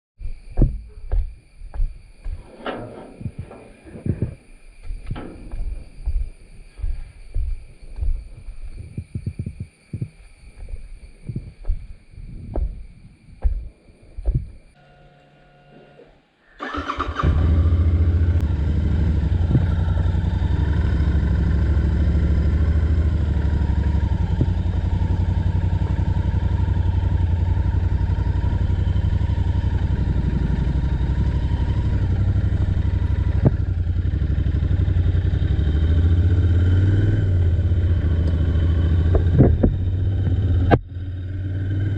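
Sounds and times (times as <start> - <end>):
motorcycle engine starting and idling: 2.4 - 8.1, 15.7 - 41.9.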